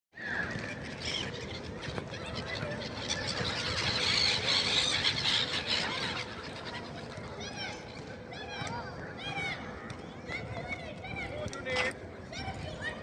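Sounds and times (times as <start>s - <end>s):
flock of birds squealing: 0.2s - 7.8s.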